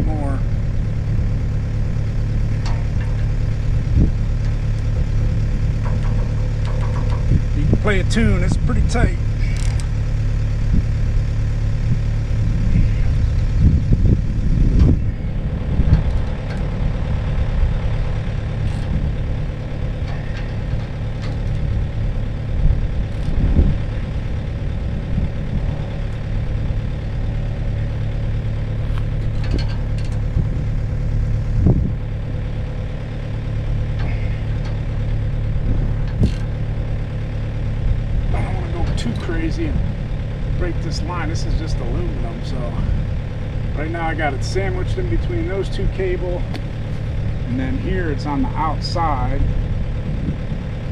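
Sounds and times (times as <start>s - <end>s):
excavator diesel engine idling: 0.0s - 50.9s
knocks on cable hardware: 5.8s - 7.4s.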